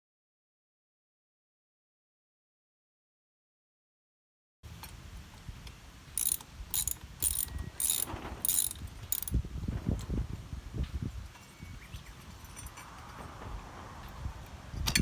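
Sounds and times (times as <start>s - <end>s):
ratchet-like rasping strokes: 6.2s - 9.4s.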